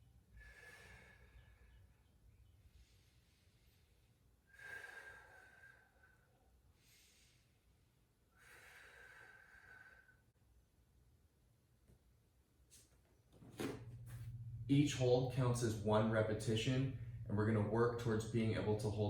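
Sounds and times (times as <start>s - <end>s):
slow deep breathing: 0.2s - 10.4s, 16.9s - 17.3s.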